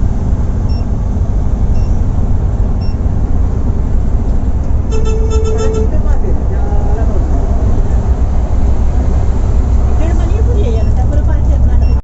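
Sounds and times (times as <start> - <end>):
coach engine and road rumble: 0.0 - 12.0
short high beeps: 4.9 - 5.9
vehicle horn: 4.9 - 6.1.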